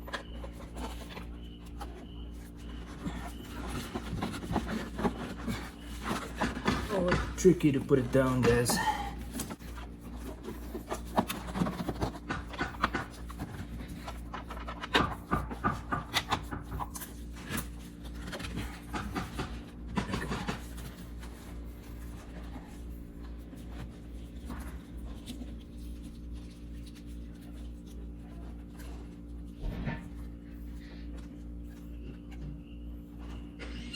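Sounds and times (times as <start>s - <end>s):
tools and parts clicking and knocking: 0.0s - 22.6s
steady low hum: 0.0s - 33.9s.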